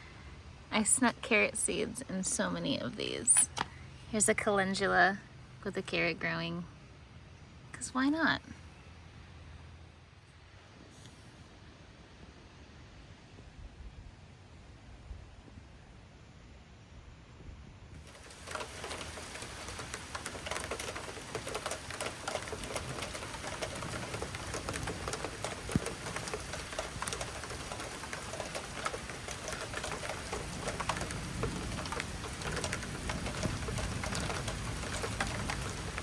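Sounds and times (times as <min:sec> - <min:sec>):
rain drops falling: 0:00.0 - 0:05.1, 0:18.0 - 0:36.0.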